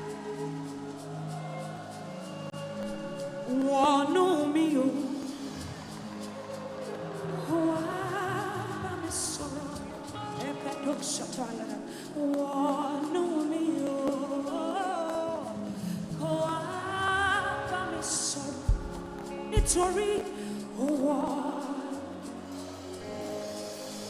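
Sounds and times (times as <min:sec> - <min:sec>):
person singing: 0:00.0 - 0:24.0
keyboard and band accompaniment: 0:17.8 - 0:24.0.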